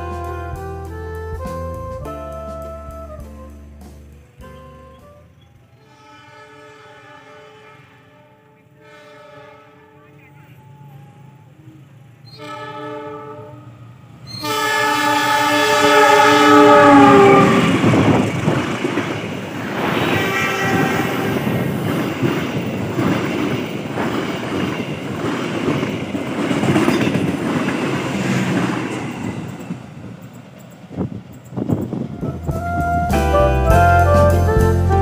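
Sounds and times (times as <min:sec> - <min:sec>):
train horn blasts: 0:00.0 - 0:10.4, 0:12.3 - 0:18.2, 0:20.0 - 0:21.6, 0:32.1 - 0:35.0
train wheels clickety-clack: 0:16.9 - 0:33.0.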